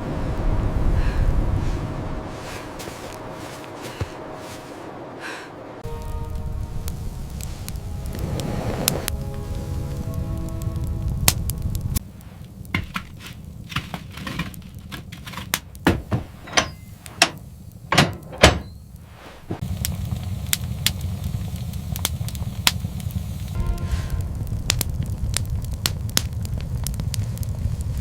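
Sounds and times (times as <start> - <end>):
low rumble: 0.0 - 28.0
sharp knocks and cracks: 12.7 - 18.7.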